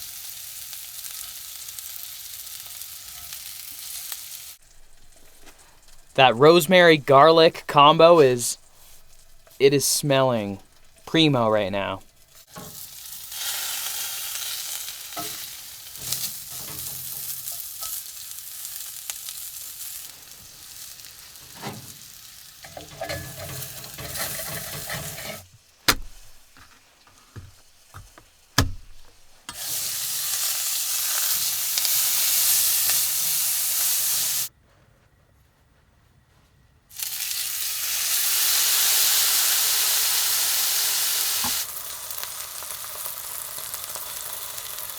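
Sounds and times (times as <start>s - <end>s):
food sizzling in a pan: 0.0s - 6.2s, 11.9s - 28.6s, 29.3s - 34.5s, 36.9s - 44.9s
sharp knocks: 25.9s - 29.6s.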